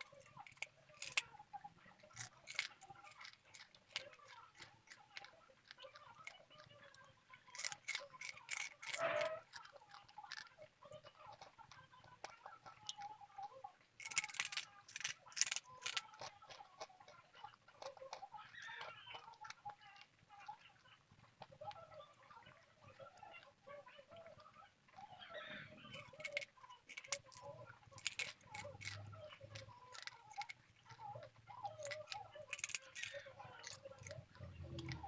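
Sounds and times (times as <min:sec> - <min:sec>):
chewing crisp hard food: 0:00.0 - 0:35.0.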